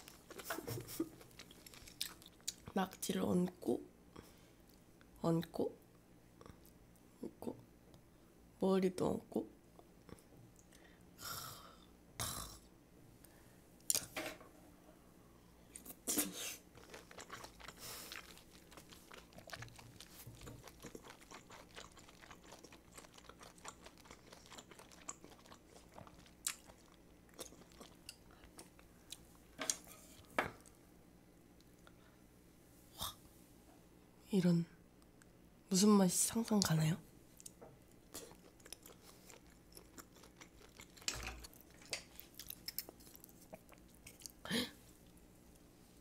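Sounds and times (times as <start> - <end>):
close-miked chewing: 0.0 - 3.1, 15.7 - 30.7, 37.4 - 45.7.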